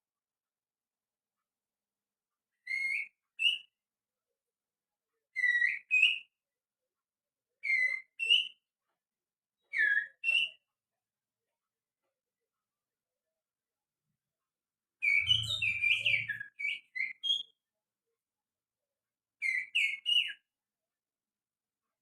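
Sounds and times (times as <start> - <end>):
finger whistling birdsong: 5.4 - 6.3, 9.8 - 10.6, 15.0 - 17.6, 19.4 - 20.5.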